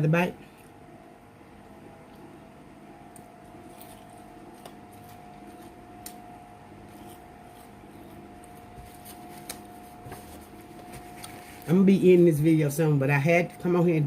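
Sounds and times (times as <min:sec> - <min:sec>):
low electrical hum: 0:00.0 - 0:14.0
close-up chewing: 0:03.2 - 0:06.2, 0:06.8 - 0:09.8.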